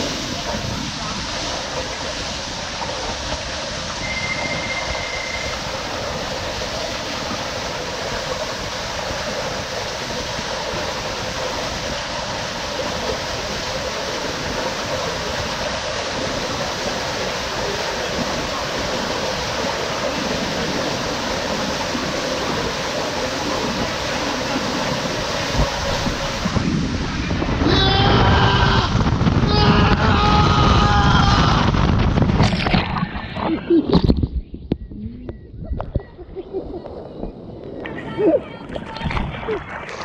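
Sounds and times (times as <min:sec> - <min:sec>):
water rushing down a waterslide: 0:00.0 - 0:34.5, 0:35.7 - 0:40.0
short high beep: 0:04.0 - 0:05.6.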